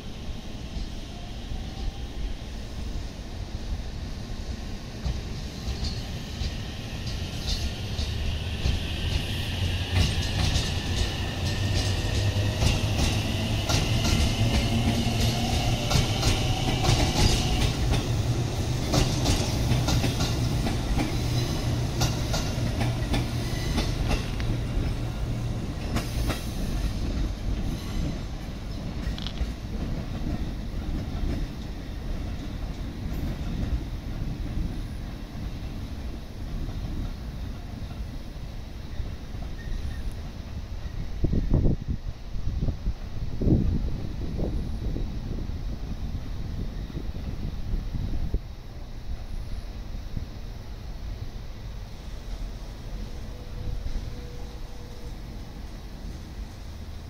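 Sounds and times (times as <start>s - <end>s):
train rumble: 0.0s - 57.0s
train wheels clacking over rail joints: 5.0s - 34.8s.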